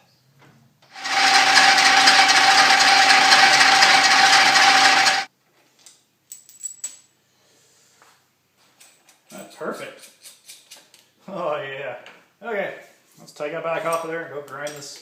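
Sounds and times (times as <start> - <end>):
drill whine: 1.0 - 5.3.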